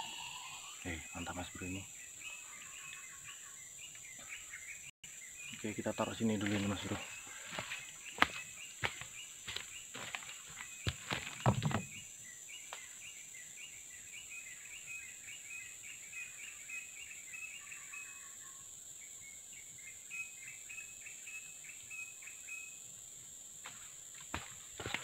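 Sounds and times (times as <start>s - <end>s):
high-pitched insect drone: 0.0s - 3.6s.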